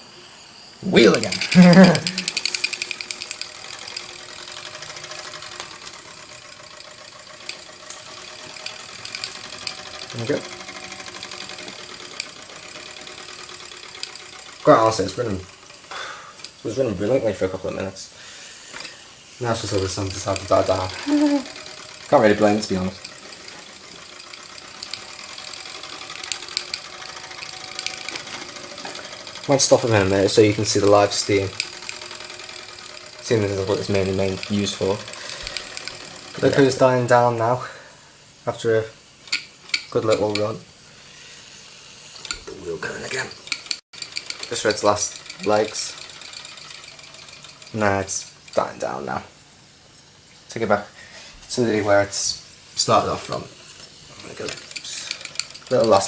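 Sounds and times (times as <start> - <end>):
small steam engine chuffing: 0.0 - 49.8, 50.8 - 56.0
small clicks: 1.1 - 16.6, 39.2 - 40.5, 43.1 - 48.6, 53.3 - 56.0.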